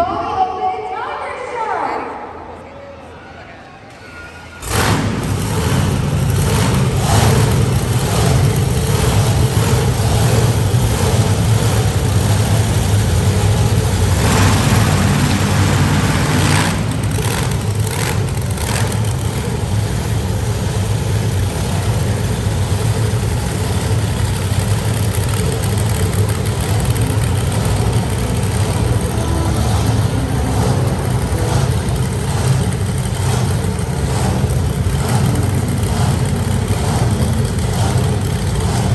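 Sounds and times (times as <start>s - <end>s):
monster truck engine revving: 3.9s - 38.9s.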